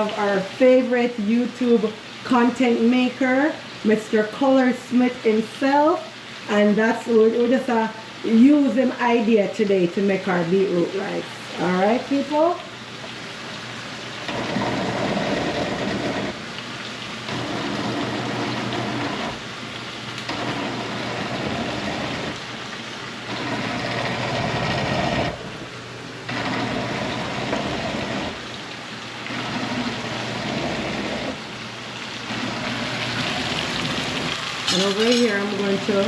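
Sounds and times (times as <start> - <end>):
electric blender blending: 14.2 - 16.6, 17.2 - 19.6, 20.2 - 25.6, 26.3 - 28.6, 29.2 - 31.6, 32.2 - 36.0.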